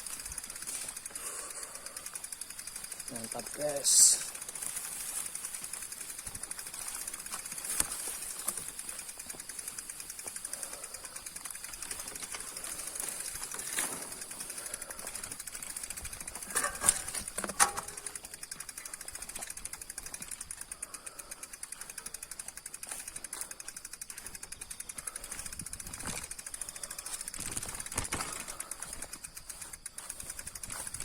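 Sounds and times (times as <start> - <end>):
bicycle freewheel hub ticking: 0.0 - 31.0
sharp knocks and rattles: 11.8 - 20.6.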